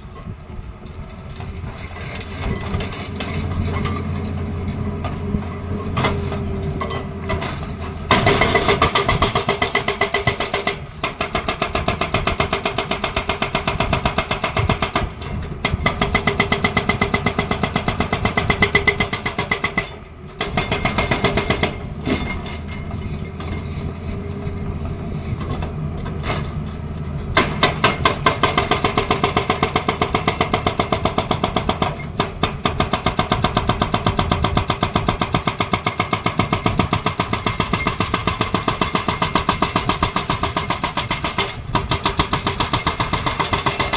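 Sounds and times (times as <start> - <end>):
diesel engine running: 2.6 - 8.9
hydraulic breaker hammering: 6.0 - 22.9, 27.3 - 43.9.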